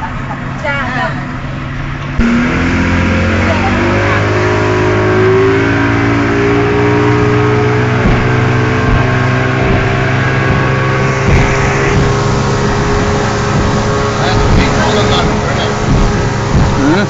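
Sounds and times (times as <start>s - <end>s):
outboard engines droning: 0.0s - 17.0s
water rushing over hull: 3.3s - 17.0s.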